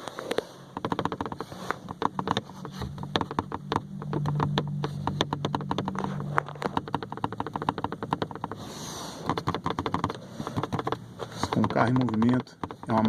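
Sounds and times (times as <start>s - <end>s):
car trim rattling: 0.0s - 13.0s
low car hum: 0.0s - 13.0s.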